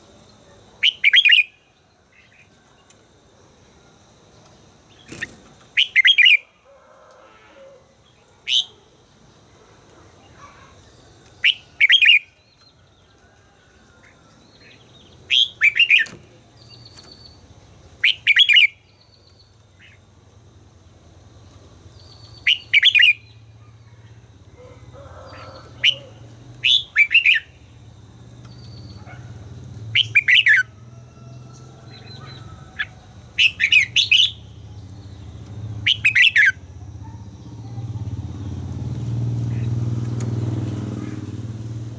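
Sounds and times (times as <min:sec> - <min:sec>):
bird singing bright phrases: 0:00.8 - 0:03.0, 0:04.9 - 0:06.5, 0:10.2 - 0:13.0, 0:14.4 - 0:20.0, 0:21.9 - 0:24.0, 0:25.4 - 0:27.7, 0:28.4 - 0:30.6, 0:31.8 - 0:38.7.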